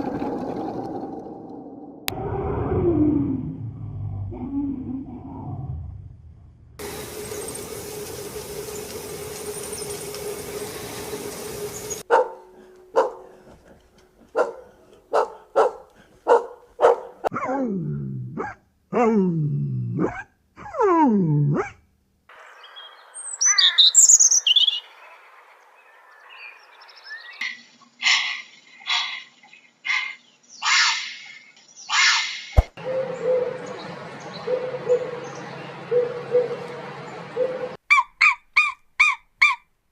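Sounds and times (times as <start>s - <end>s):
steady hum and hiss: 6.8s - 12.0s
dog barking: 12.1s - 13.3s, 14.3s - 17.6s, 18.4s - 18.6s
high bird chirps: 22.5s - 27.7s.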